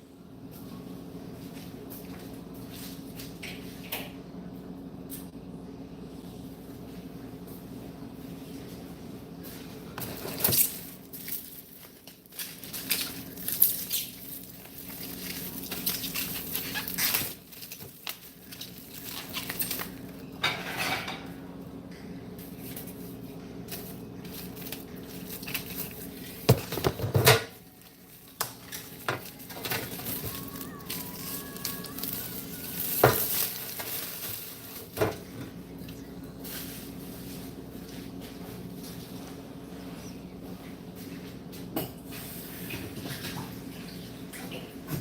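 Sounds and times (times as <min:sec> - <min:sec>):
low appliance hum: 0:00.0 - 0:45.0.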